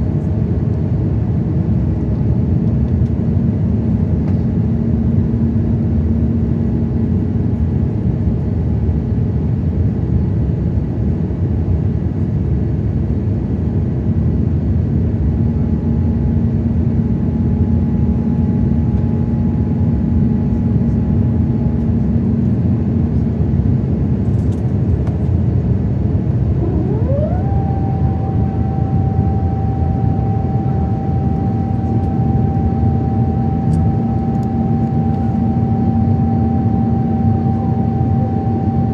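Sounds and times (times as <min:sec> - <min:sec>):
jet engines rumbling: 0:16.4 - 0:38.9
rising high engine tone: 0:26.4 - 0:38.9.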